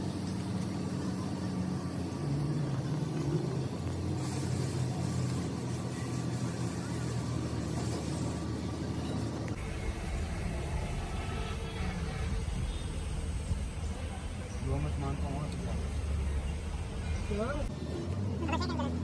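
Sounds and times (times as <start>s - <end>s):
engine humming: 0.0s - 19.0s
hiss: 3.1s - 8.9s.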